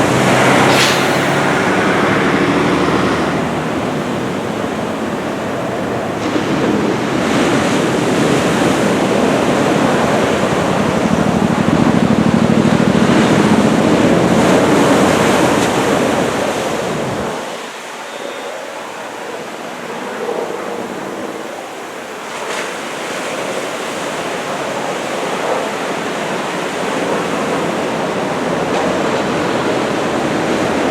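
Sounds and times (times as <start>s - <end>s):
wind buffeting microphone: 0.0s - 17.7s
ocean surf breaking: 0.0s - 30.9s.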